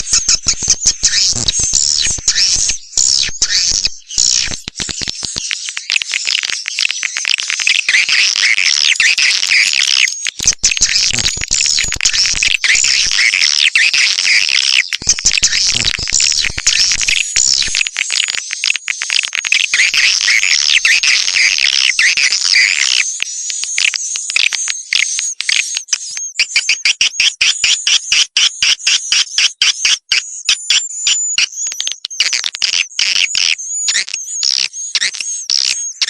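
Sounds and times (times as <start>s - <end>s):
swiftlets twittering: 0.0s - 6.7s, 8.0s - 23.9s
sharp clicks: 0.0s - 13.7s, 14.6s - 27.4s.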